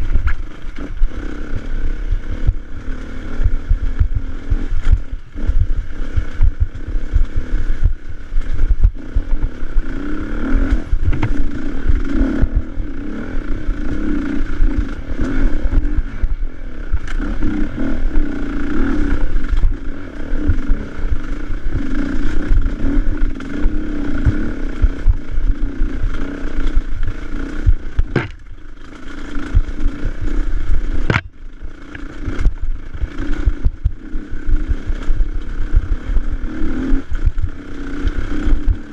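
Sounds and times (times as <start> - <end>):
motorcycle engine revving: 0.0 - 38.9
rumble and clatter from riding: 0.0 - 38.9
sharp knocks: 28.0 - 28.5, 31.1 - 31.4.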